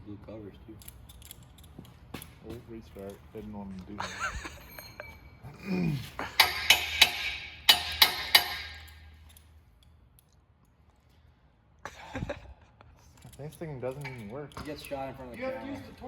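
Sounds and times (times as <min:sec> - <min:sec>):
metal clinking and clanking: 0:04.0 - 0:05.4, 0:06.1 - 0:10.3, 0:13.1 - 0:16.0.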